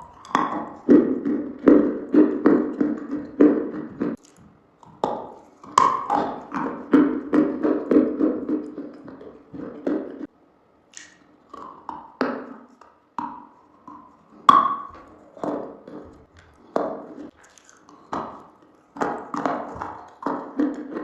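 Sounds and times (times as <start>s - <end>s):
crunchy eating sounds: 0.0s - 10.3s, 10.9s - 21.0s.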